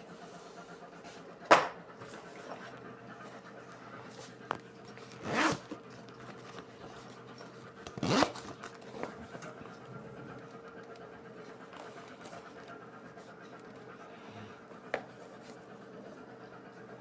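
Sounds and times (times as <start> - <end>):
zip being pulled: 5.2 - 5.7, 8.0 - 8.6.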